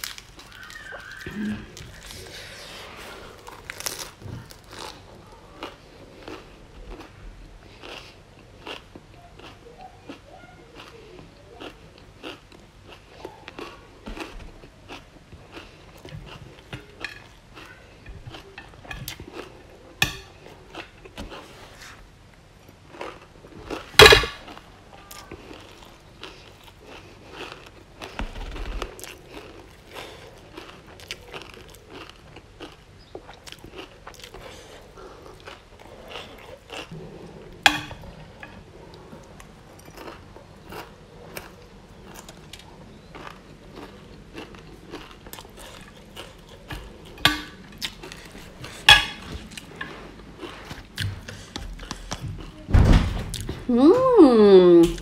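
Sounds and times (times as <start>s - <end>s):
chewing crunchy food: 0.0s - 52.6s.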